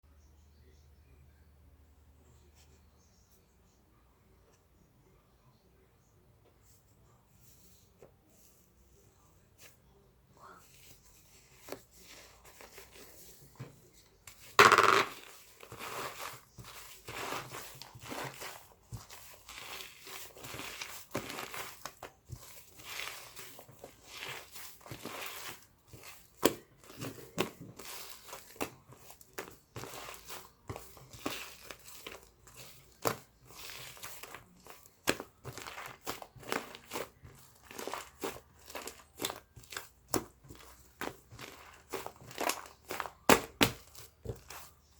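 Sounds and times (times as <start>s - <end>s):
crinkling and rustling: 10.6s - 44.9s.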